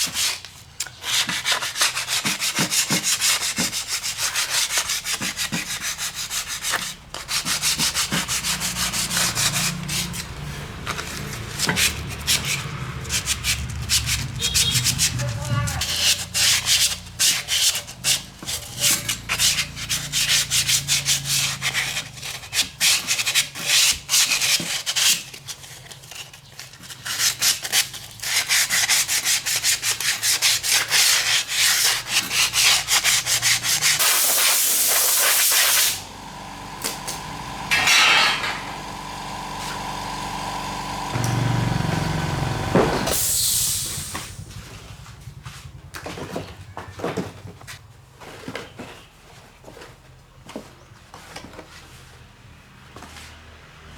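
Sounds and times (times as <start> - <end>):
rubbing strokes on metal: 1.0 - 25.2, 27.2 - 36.0
short hiss: 43.1 - 44.4.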